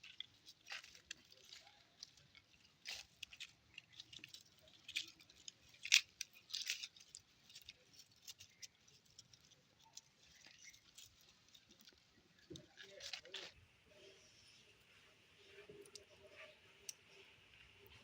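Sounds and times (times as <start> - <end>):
puppies scratching and pattering: 0.0 - 13.6.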